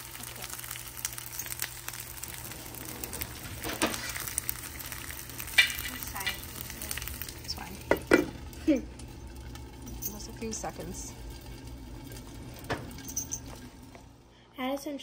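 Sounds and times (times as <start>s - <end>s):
food sizzling in frying pan: 0.0s - 14.2s
glass lid knocking on pan: 7.8s - 8.4s.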